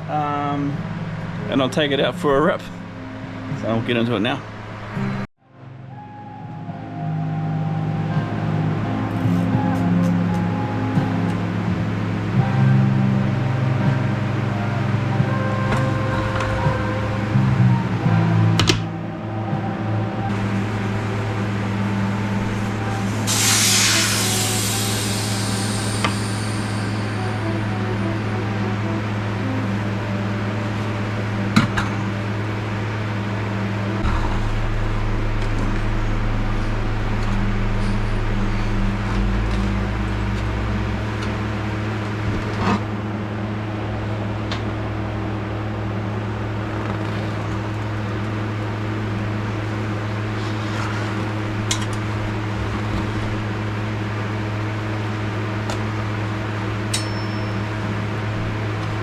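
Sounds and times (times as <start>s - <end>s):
deep rumble: 0.0s - 56.9s
mechanical fan hum: 6.9s - 59.0s
sharp clicks and knocks: 18.6s - 18.9s
spray can hiss: 23.1s - 27.2s.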